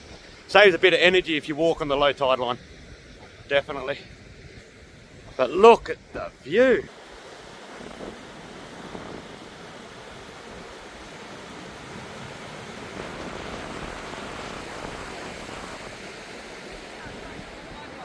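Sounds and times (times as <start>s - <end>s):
ocean surf on sandy beach: 0.0s - 18.0s
wind on microphone: 2.6s - 18.0s.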